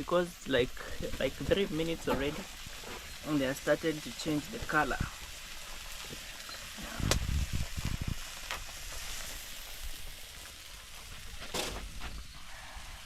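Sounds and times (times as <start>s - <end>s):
pot sizzling over a fire: 0.0s - 13.0s
dull low bumps: 6.0s - 9.1s.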